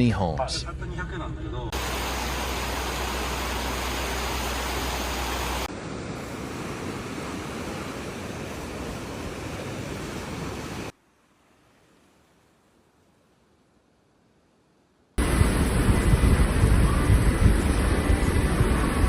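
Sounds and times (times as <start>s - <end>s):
floodwater rushing: 1.7s - 13.3s.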